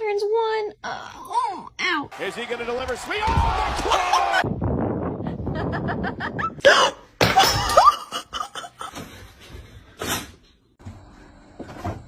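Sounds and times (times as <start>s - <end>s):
person laughing: 5.3s - 9.1s.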